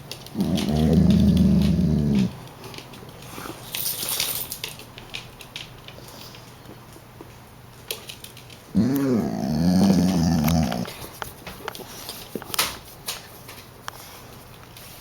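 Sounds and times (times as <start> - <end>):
dog growling: 0.3 - 2.5, 8.7 - 11.0.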